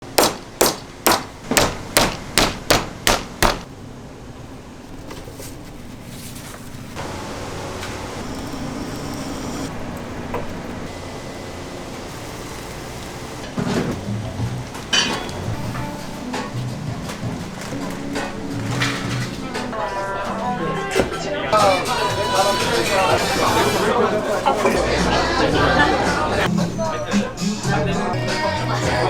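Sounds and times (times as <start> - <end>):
sharp chopping blows: 0.0 - 3.7
steady background hum: 0.0 - 29.0.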